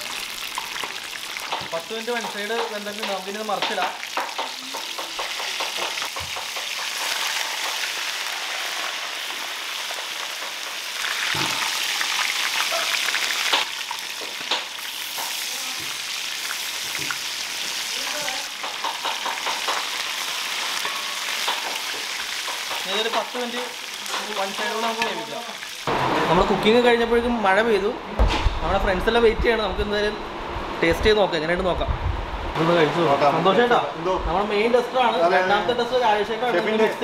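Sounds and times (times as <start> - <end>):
fish parcels sizzling in oil: 0.0 - 25.9.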